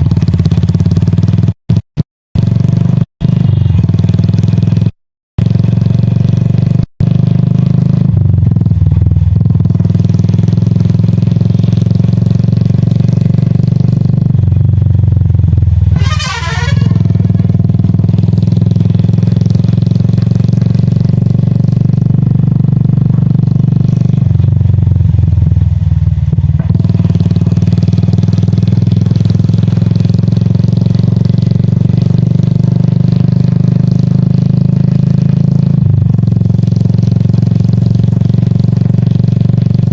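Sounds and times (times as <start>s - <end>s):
motorcycle engine running: 0.0s - 1.8s, 2.4s - 39.9s
high trilling sound: 16.0s - 17.6s.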